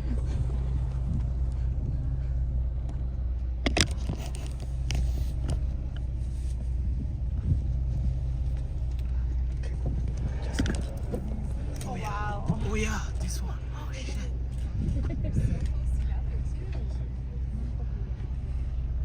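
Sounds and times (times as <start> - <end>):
boat engine rumble: 0.0 - 19.0.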